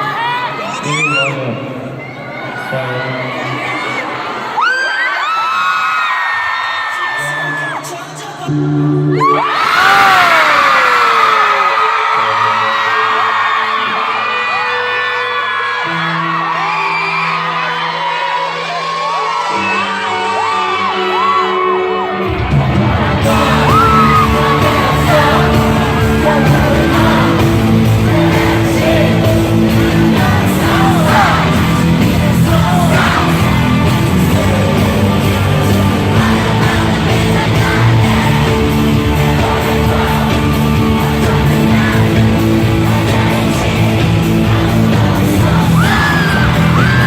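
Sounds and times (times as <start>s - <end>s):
fans yelling and whooping: 0.0s - 47.0s
live pop music over sound system: 0.0s - 47.0s
person singing: 22.9s - 47.0s.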